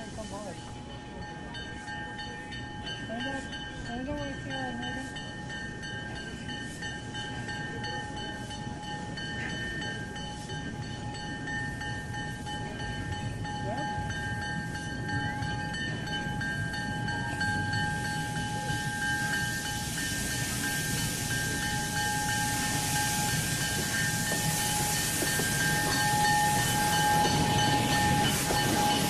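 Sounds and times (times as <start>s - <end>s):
steam locomotive whine and rumble: 0.0s - 29.0s
steam hiss: 17.0s - 29.0s.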